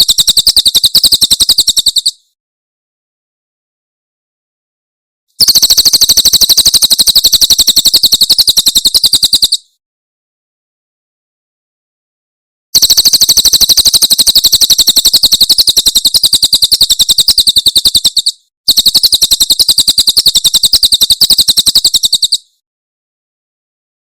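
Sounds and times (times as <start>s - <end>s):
songbird rattling song: 0.0s - 2.3s, 5.4s - 9.7s, 12.8s - 22.6s.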